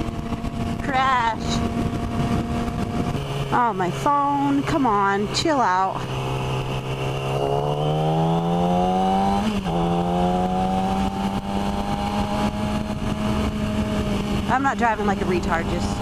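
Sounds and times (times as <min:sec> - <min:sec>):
motorcycle engine accelerating: 0:00.0 - 0:16.0
wind noise: 0:00.0 - 0:16.0.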